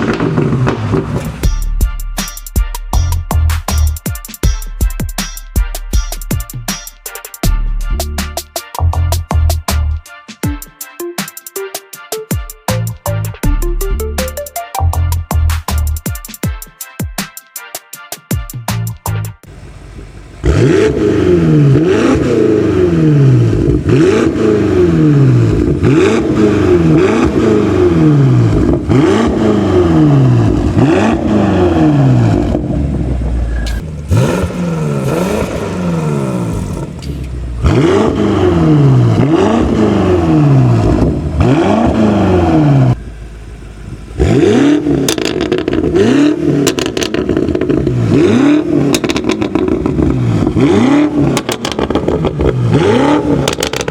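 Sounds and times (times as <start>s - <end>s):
car engine revving through exhaust: 0.0s - 1.7s, 19.4s - 53.9s.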